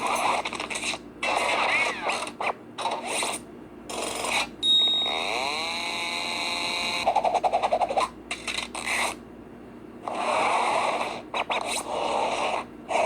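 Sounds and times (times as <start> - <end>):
mechanical whir with whine: 0.0 - 7.1.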